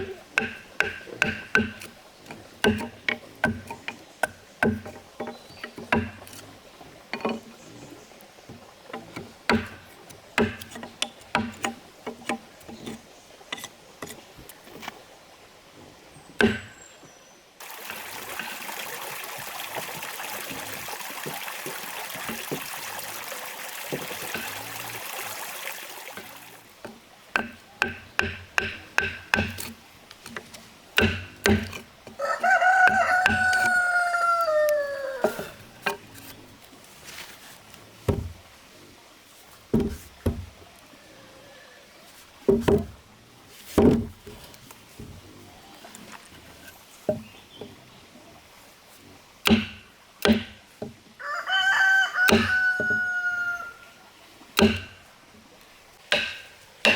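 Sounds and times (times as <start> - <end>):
irregular knocks and taps: 0.0 - 6.4, 8.5 - 14.2, 21.1 - 22.8, 23.9 - 24.6, 26.2 - 32.2, 38.1 - 38.4, 39.7 - 40.5, 42.5 - 43.0, 43.7 - 45.2, 49.4 - 51.0
rooster crowing: 32.2 - 35.6, 51.2 - 53.8.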